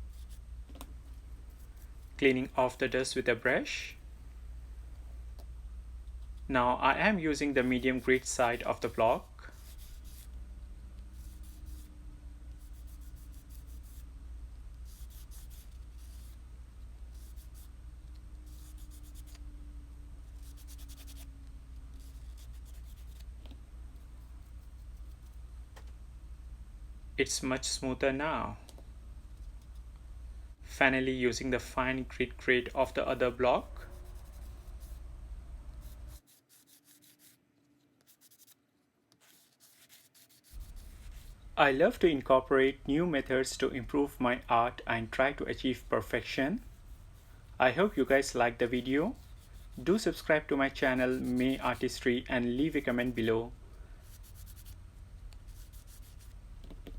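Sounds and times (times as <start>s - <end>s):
low steady hum: 0.0s - 56.9s
sanding block scratching resin: 7.5s - 10.3s, 11.1s - 11.9s, 12.6s - 14.1s, 14.8s - 16.4s, 17.1s - 17.7s, 18.4s - 19.4s, 20.3s - 21.3s, 22.0s - 23.2s, 32.6s - 35.0s, 35.8s - 37.4s, 38.1s - 38.6s, 39.2s - 41.4s, 46.1s - 53.3s, 54.1s - 54.8s, 55.5s - 56.3s.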